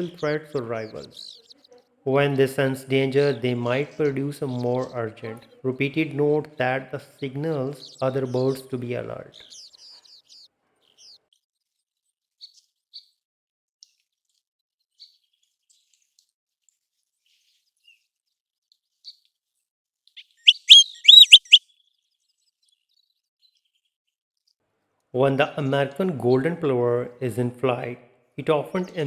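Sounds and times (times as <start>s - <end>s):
plover whistled calls: 20.5s - 21.6s.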